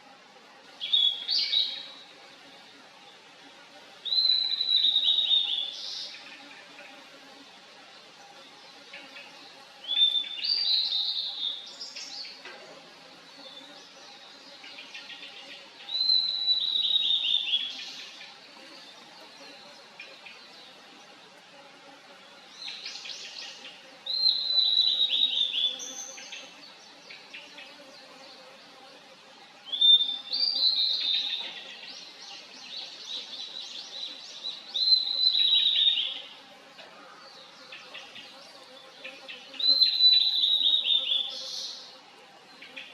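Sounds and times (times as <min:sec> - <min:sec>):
bird singing: 0:15.9 - 0:18.2, 0:22.6 - 0:26.5, 0:29.7 - 0:36.3, 0:37.0 - 0:41.9.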